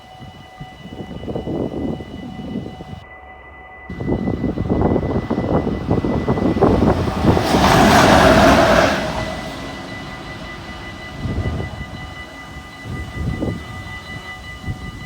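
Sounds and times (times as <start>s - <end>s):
train wheels clattering over rails: 3.9s - 14.3s.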